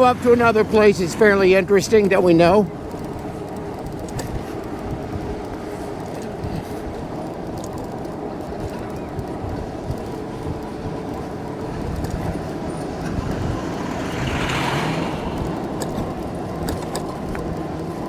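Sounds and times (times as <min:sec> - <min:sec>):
road rumble: 0:00.0 - 0:18.0
wind noise: 0:00.0 - 0:18.0
passing vehicle hiss: 0:12.6 - 0:16.6.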